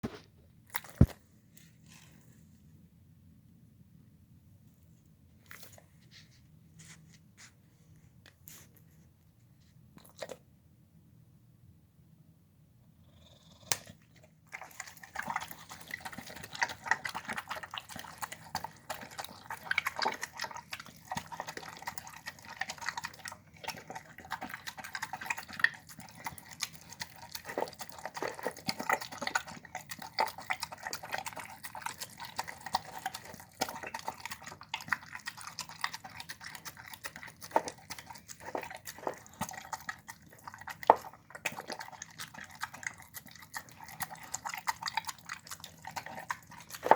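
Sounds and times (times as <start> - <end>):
dog chewing bones: 14.5 - 46.9.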